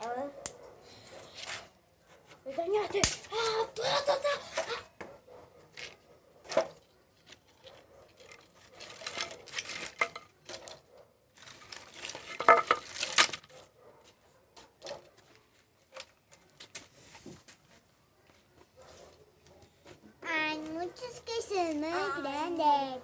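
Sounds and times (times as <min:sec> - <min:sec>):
rustling clatter of twigs: 0:05.8 - 0:13.7.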